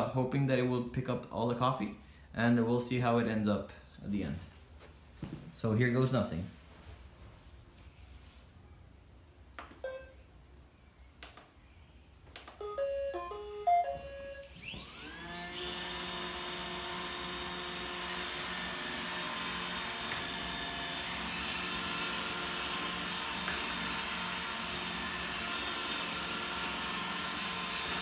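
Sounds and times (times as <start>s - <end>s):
start-up beeps: 9.8s - 10.2s, 12.6s - 14.7s
clicks: 11.2s - 11.6s
vacuum motor whine: 12.8s - 28.0s.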